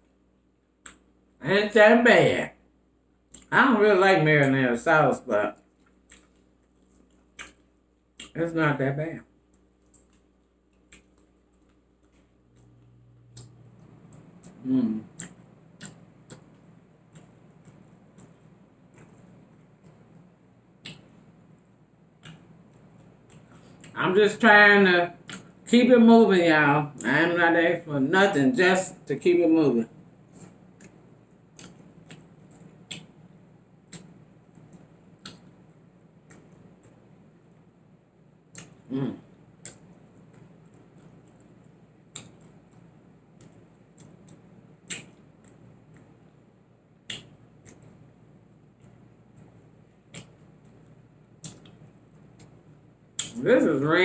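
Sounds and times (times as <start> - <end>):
wet mouth clicks while chewing: 5.6 - 8.4, 9.5 - 21.3, 22.2 - 24.0, 30.3 - 35.6, 36.2 - 37.0, 38.5 - 46.3, 47.0 - 48.0, 48.8 - 52.6, 53.2 - 53.4.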